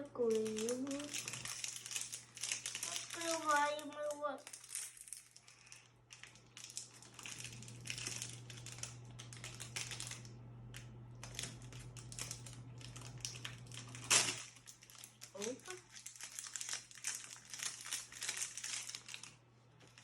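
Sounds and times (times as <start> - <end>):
plastic packet crinkling: 0.0 - 20.0
steady low hum: 4.4 - 16.0.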